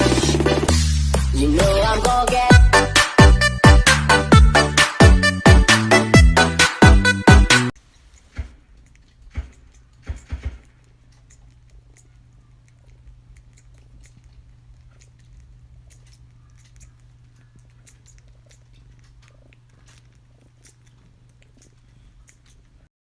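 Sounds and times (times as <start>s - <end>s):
cat purring: 8.2s - 22.9s.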